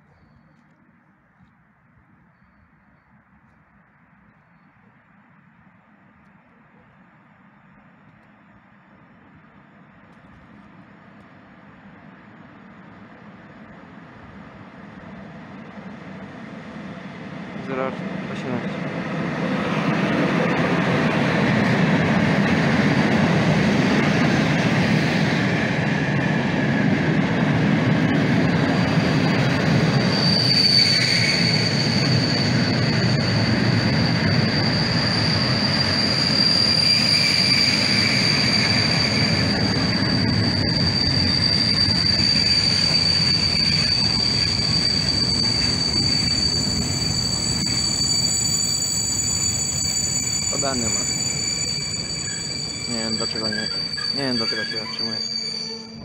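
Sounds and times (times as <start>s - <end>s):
freight wagons rumbling on rails: 5.5s - 56.0s
high-pitched brake squeal: 28.1s - 56.0s.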